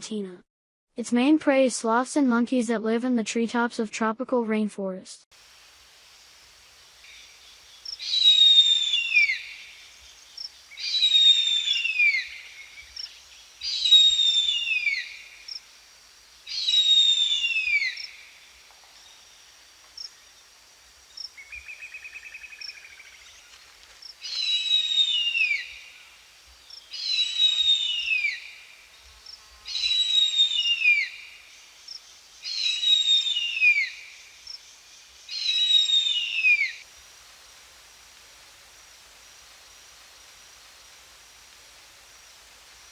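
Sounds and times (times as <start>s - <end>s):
eagle wailing calls: 10.8s - 13.0s.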